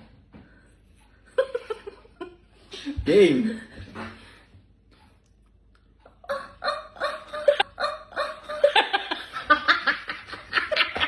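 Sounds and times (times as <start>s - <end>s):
person laughing: 6.1s - 11.0s.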